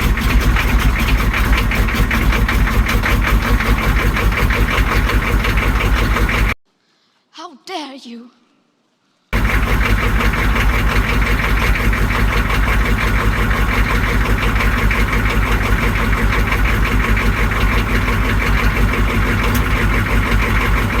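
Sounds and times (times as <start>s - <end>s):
diesel engine idling: 0.0s - 6.6s, 9.4s - 21.0s.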